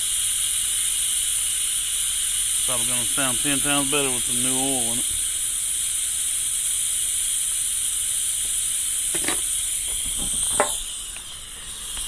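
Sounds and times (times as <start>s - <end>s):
high-pitched hiss: 1.2s - 6.5s.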